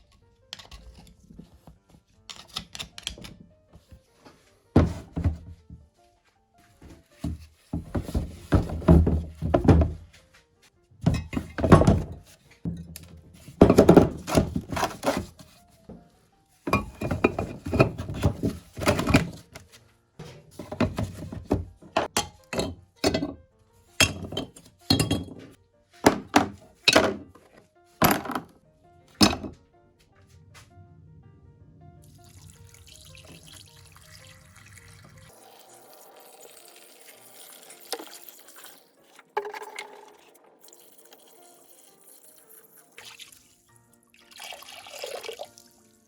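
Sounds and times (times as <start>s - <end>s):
knocks and thuds on metal parts: 13.6s - 14.8s, 24.0s - 27.4s, 28.0s - 28.5s.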